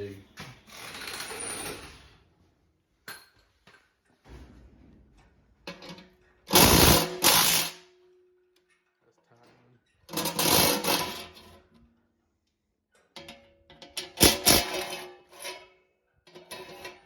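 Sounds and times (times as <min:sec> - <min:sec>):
tools clicking and clattering: 0:05.2 - 0:07.7, 0:12.9 - 0:15.6
impact wrench hammering: 0:06.5 - 0:07.8.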